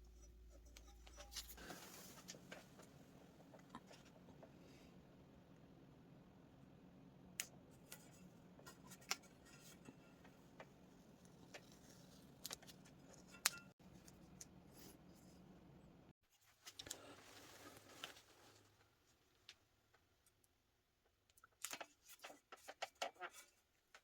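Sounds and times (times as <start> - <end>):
low steady hum: 0.0 - 16.2.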